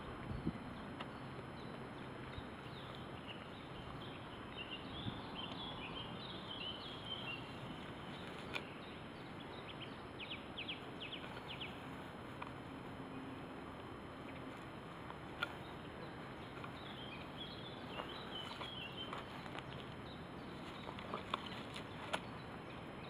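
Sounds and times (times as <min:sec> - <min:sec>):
birds chirping: 0:00.0 - 0:23.0
steady outdoor hiss: 0:00.0 - 0:23.0.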